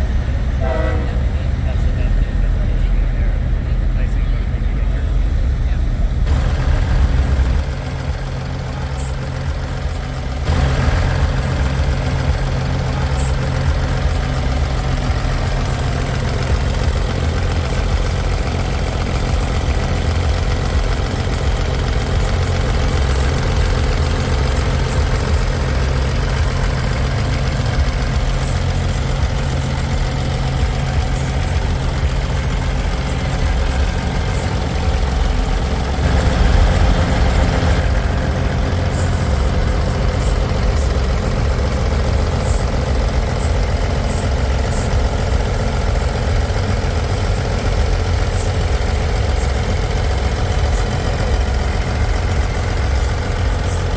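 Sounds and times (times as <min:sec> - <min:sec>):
diesel truck engine idling: 0:00.0 - 0:53.9.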